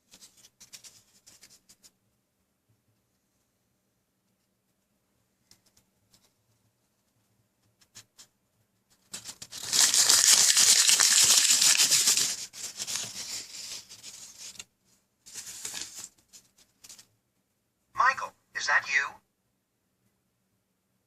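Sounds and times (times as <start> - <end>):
paper or plastic rustling: 0.0 - 1.9, 9.0 - 14.7, 15.3 - 17.1.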